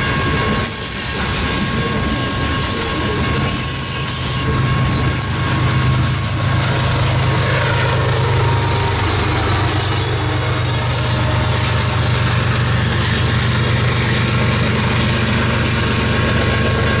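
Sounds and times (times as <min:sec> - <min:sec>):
freight train rolling past: 0:00.0 - 0:17.0.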